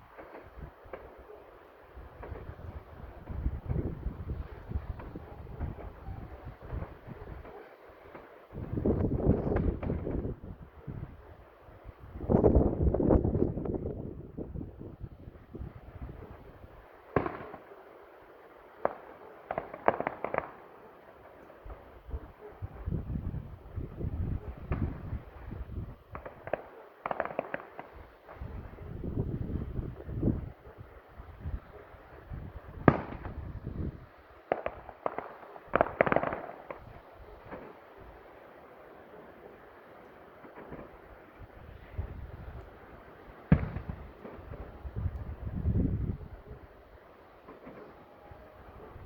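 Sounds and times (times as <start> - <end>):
fireworks sharp cracks: 0.0 - 1.3, 6.6 - 10.3, 17.0 - 17.9, 18.7 - 22.0, 24.6 - 25.4, 26.1 - 29.2, 32.8 - 38.4, 40.3 - 42.0, 43.2 - 45.3, 47.4 - 48.2
wind rumble on microphone: 1.9 - 7.5, 8.5 - 16.8, 21.6 - 26.5, 28.0 - 34.9, 41.4 - 46.8
fireworks bangs: 2.0 - 10.4, 17.1 - 17.8, 18.8 - 21.9, 24.6 - 30.3, 32.7 - 38.3, 40.3 - 42.2, 43.3 - 45.7, 47.4 - 49.0.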